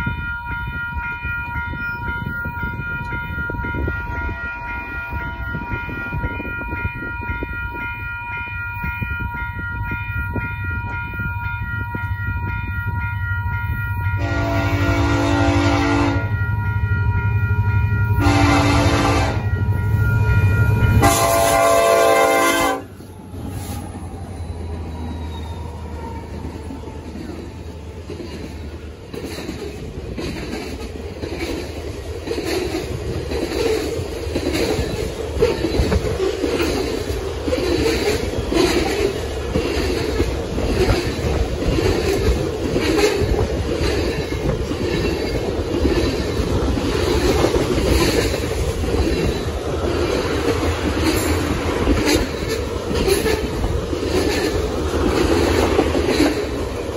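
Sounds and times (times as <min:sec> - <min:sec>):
locomotive horn blasts: 0:14.0 - 0:16.8, 0:18.1 - 0:23.0
train wheels clacking over rail joints: 0:26.4 - 0:56.9.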